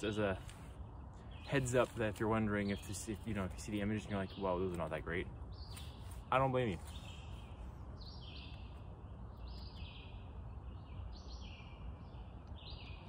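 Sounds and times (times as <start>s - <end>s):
low steady rumble: 0.0s - 13.0s
songbird singing: 0.0s - 13.0s.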